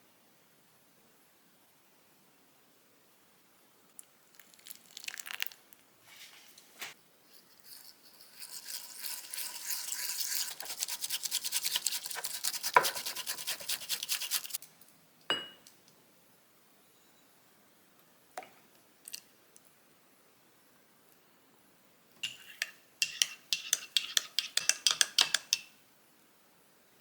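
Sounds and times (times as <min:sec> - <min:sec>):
light clinks and scrapes: 0:07.3 - 0:10.9
whisk brushing in a cup: 0:07.3 - 0:14.6, 0:22.2 - 0:25.6
hard clink against cup: 0:15.3 - 0:15.7.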